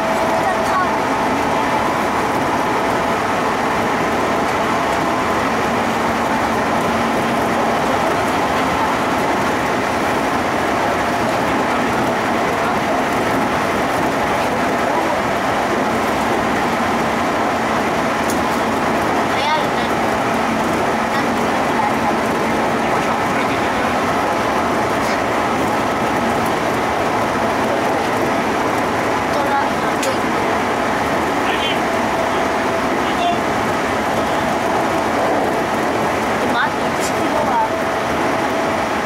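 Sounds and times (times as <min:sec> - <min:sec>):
train running through tunnel: 0:00.0 - 0:39.0.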